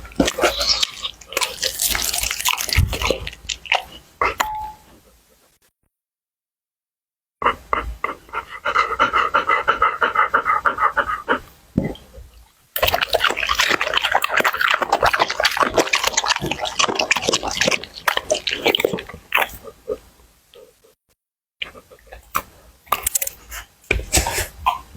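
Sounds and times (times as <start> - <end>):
dog chewing and crunching: 0.0 - 4.4, 12.8 - 20.0, 21.6 - 24.4.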